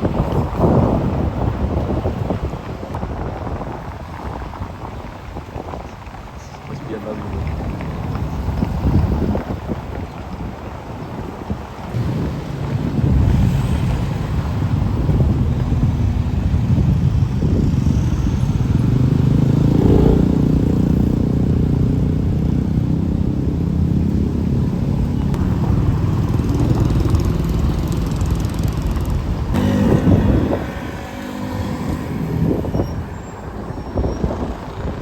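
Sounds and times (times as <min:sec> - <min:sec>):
vehicle engines passing: 0:00.0 - 0:35.0.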